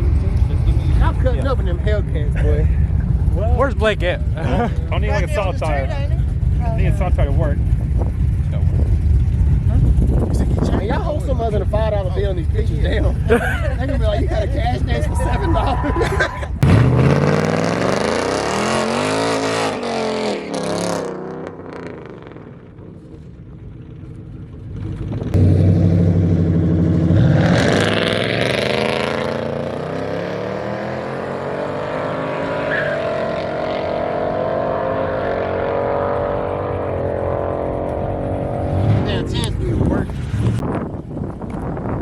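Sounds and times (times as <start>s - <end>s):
drag racing car engines accelerating: 14.1s - 22.8s, 24.8s - 40.7s.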